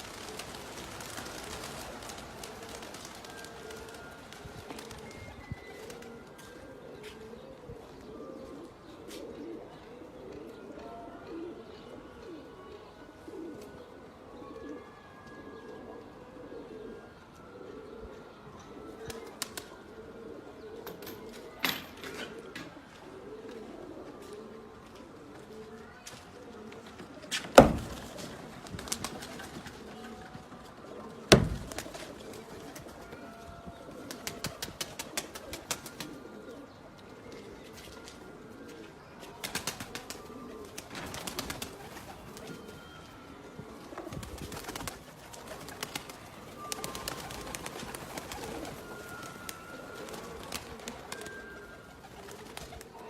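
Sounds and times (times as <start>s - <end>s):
pigeons cooing: 0.0s - 53.0s
loud sharp knocks: 27.6s - 28.0s, 31.3s - 31.7s.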